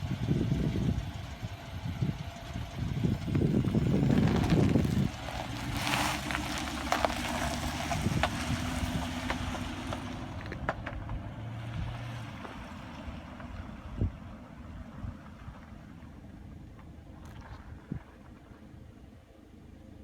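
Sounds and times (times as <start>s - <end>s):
wind on microphone: 0.0s - 6.4s
vehicle engine running: 0.0s - 20.0s.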